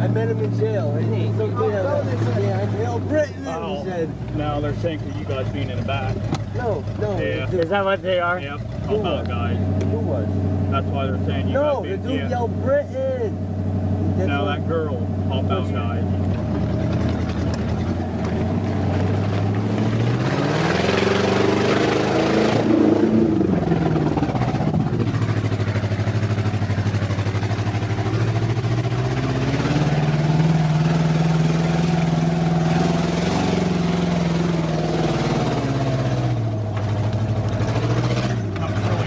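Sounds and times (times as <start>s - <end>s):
engine revving: 0.0s - 39.0s.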